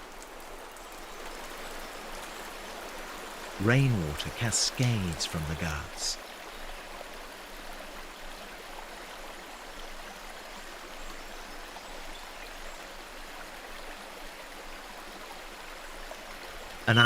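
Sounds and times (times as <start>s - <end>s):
water rushing over rocks: 3.6s - 6.2s.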